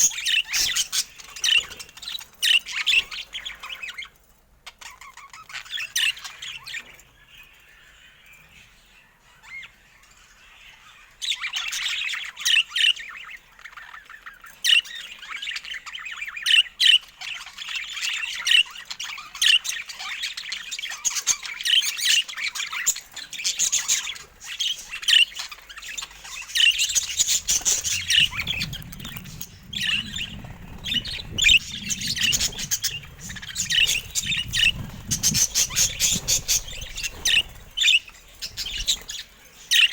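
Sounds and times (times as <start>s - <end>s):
budgerigars chattering and chirping: 0.0s - 4.1s, 4.7s - 39.9s
low rumble: 26.6s - 37.8s.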